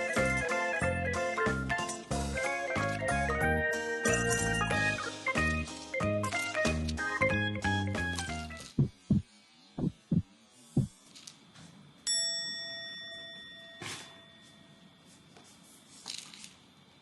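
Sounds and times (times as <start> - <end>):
bell-like ding: 12.1 - 14.6.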